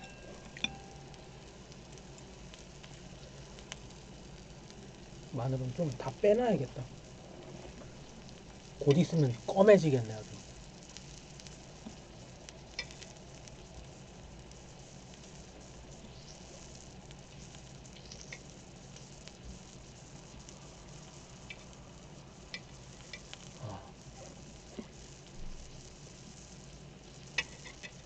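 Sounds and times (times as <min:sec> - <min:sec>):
meat sizzling in a pan: 0:00.0 - 0:28.0.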